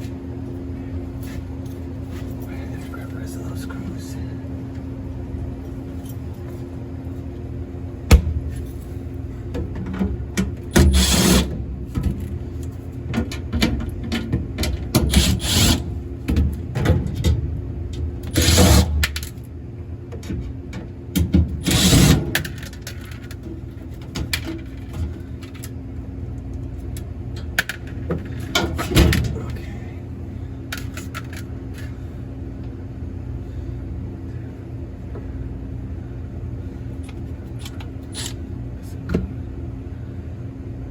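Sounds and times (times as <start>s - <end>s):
cordless drill whirring: 10.9s - 11.5s, 15.1s - 15.8s, 18.4s - 18.9s, 21.6s - 22.2s.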